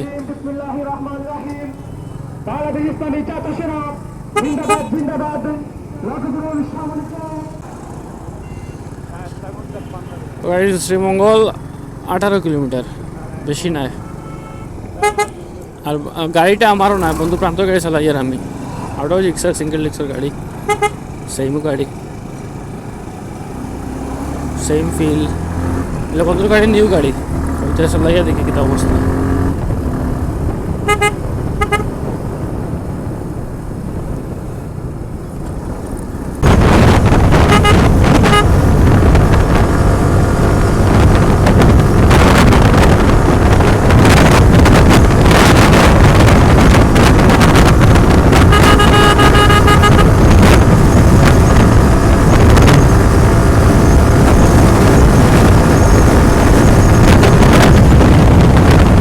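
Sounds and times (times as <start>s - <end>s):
motorcycle engine: 1.7s - 59.0s
vehicle horn honks: 4.4s - 5.1s, 8.4s - 8.9s, 14.0s - 15.4s, 20.6s - 21.0s, 30.8s - 32.0s, 37.3s - 38.6s, 48.3s - 50.3s
wind on microphone: 36.3s - 59.0s.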